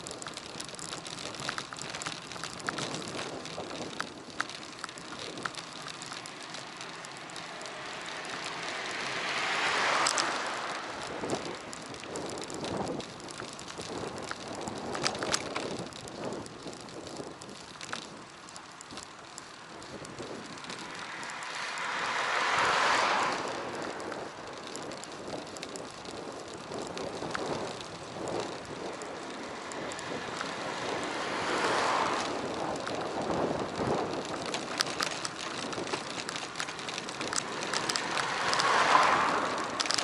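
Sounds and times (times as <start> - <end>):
bicycle road noise: 0.0 - 40.0
small clicks and rattles: 0.0 - 40.0
wind rush: 7.1 - 18.3, 19.7 - 40.0.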